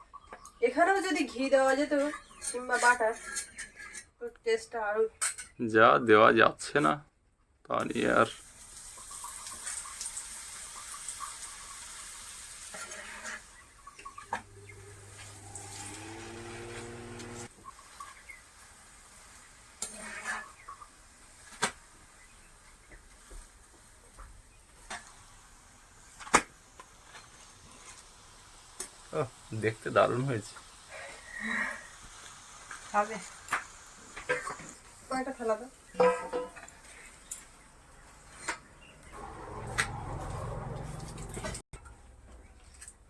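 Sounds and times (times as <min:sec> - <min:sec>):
flatbread sizzling in oil: 0:07.9 - 0:38.6
metal spatula scraping pan: 0:12.7 - 0:13.6, 0:19.8 - 0:20.7, 0:36.0 - 0:37.0
low hum: 0:14.2 - 0:17.5, 0:39.2 - 0:41.6.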